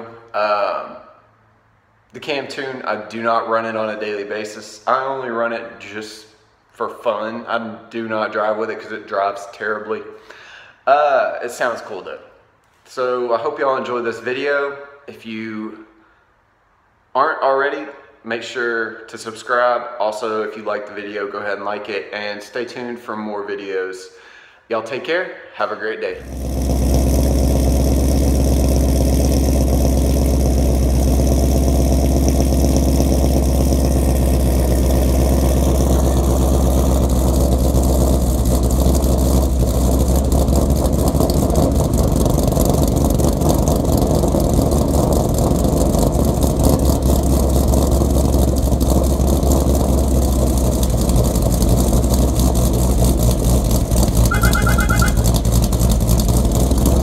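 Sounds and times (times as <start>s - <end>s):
car engine idling lopey: 26.2s - 57.0s.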